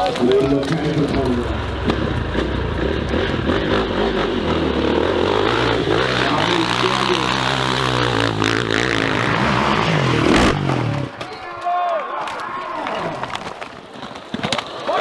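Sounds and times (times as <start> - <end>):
motorcycle engine running hard: 0.4 - 11.1.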